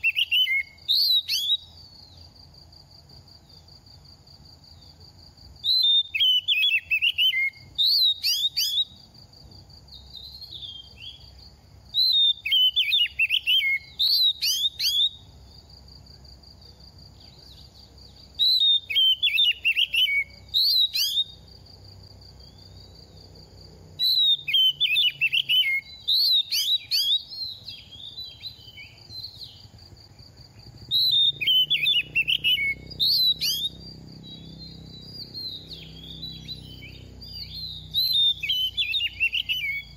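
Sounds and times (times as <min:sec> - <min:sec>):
bird singing whistled phrases: 0:00.0 - 0:01.9, 0:05.6 - 0:09.0, 0:10.0 - 0:11.3, 0:11.9 - 0:15.3, 0:18.4 - 0:21.4, 0:24.0 - 0:29.7, 0:30.9 - 0:39.9.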